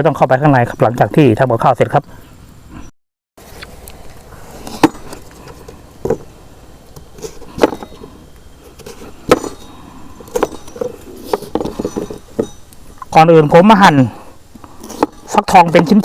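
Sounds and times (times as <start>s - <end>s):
cooking gear knocking and clinking: 9.2s - 12.7s.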